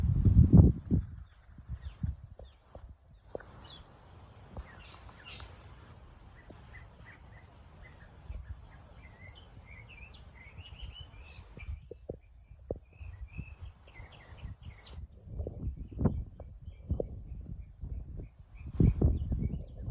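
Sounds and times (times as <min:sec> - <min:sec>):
steady low rumble: 0:00.0 - 0:03.3
birds chirping and twittering: 0:01.2 - 0:19.9.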